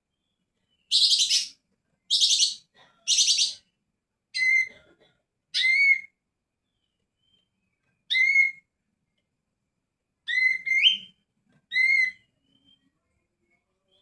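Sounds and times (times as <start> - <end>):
bird harsh rasping notes: 0.9 - 1.5, 2.1 - 3.6.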